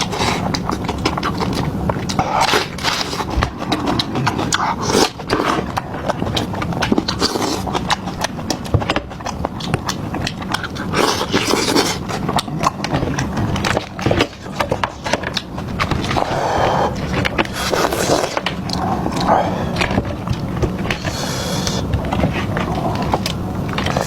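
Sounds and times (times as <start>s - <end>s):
chewing and crunching food: 0.0s - 24.0s
wet mouth noises: 0.0s - 24.0s.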